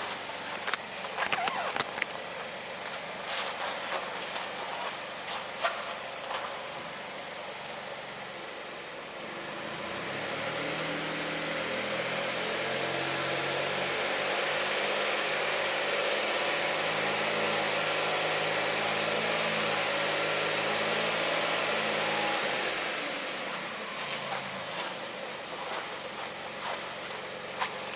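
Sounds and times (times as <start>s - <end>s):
small car engine revving: 1.2s - 2.1s, 9.2s - 27.9s.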